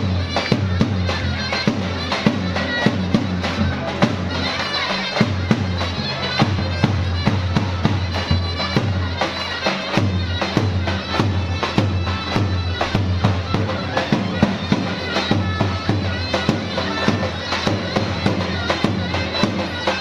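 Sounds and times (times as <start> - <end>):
drum beats: 0.0 - 20.0
reedy folk wind instrument: 0.0 - 20.0.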